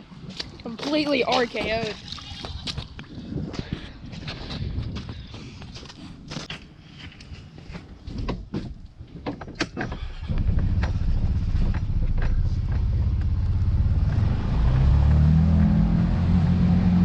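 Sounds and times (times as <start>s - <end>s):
engine starting and running: 9.6s - 17.0s.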